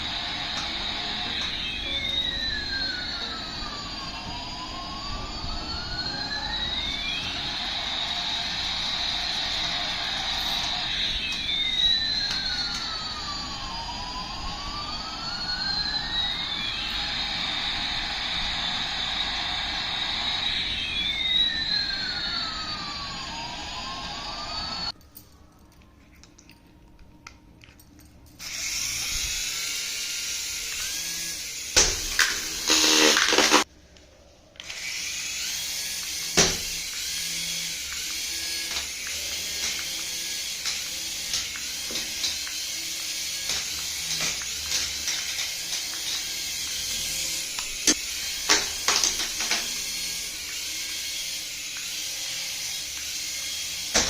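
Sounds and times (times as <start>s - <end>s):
electronic toy sliding tones: 0.0s - 24.9s, 28.4s - 33.7s, 34.6s - 53.9s.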